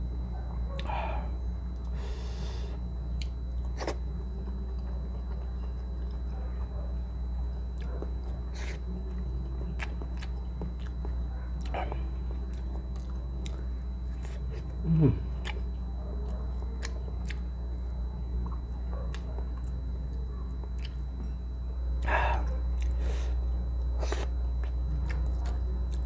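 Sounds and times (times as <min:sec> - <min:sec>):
low background hum: 0:00.0 - 0:26.0
wet chewing mouth sounds: 0:07.8 - 0:17.5, 0:20.7 - 0:21.3, 0:22.0 - 0:23.3, 0:24.0 - 0:26.0
person humming low: 0:11.7 - 0:12.3, 0:14.6 - 0:15.6.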